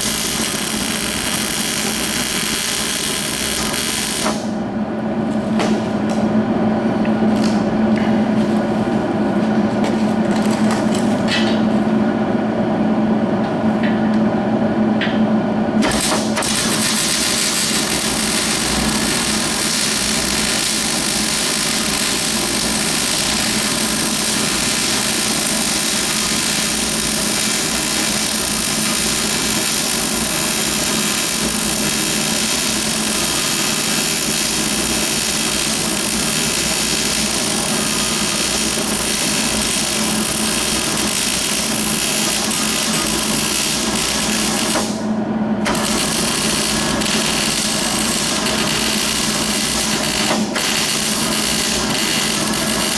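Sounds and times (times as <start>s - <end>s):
welder arc hissing: 0.0s - 4.5s, 15.8s - 52.9s
steady hum: 0.0s - 52.9s.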